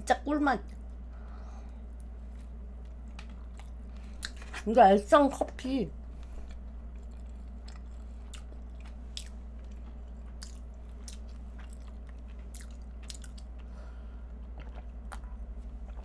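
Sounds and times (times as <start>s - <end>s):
low hum: 0.0s - 16.0s
chewing with wet clicks: 2.0s - 4.6s, 6.4s - 16.0s.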